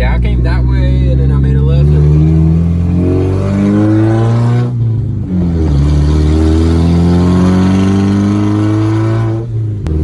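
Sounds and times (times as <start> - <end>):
truck engine accelerating: 0.0 - 10.0.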